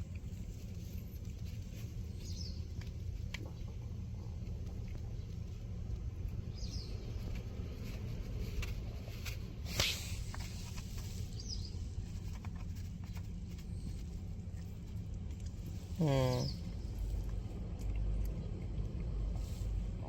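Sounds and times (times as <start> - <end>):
steady low rumble: 0.0 - 20.0
brief hiss: 9.6 - 10.3.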